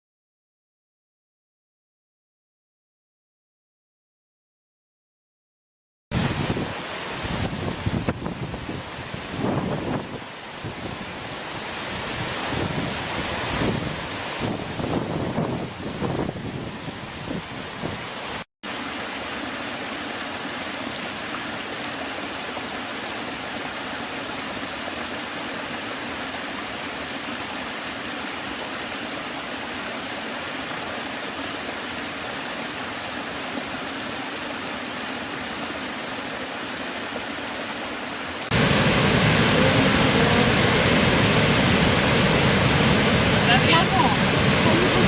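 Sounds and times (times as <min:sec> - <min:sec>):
waterfall rushing: 0:06.2 - 0:45.0.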